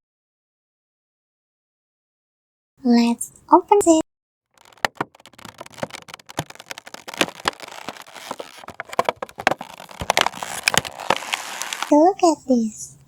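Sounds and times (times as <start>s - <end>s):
packaging rustling and crinkling: 4.6s - 12.0s.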